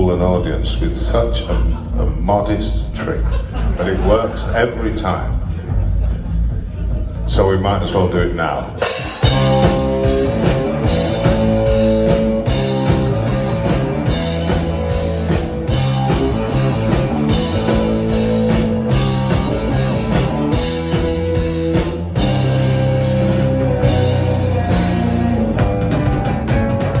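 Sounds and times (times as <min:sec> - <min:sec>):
live rock band playing: 0:08.8 - 0:27.0.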